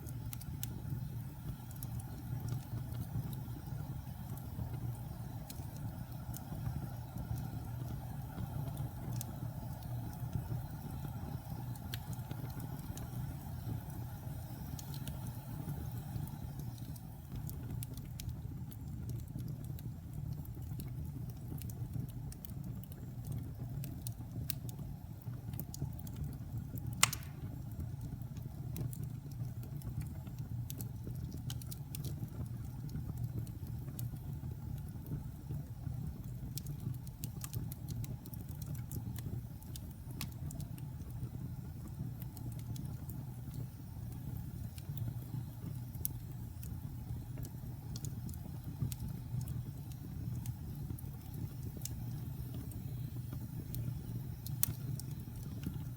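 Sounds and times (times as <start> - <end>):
fire crackling: 0.0 - 55.9
wood fire rumbling: 0.0 - 55.9
loud pop of fire: 27.0 - 27.6.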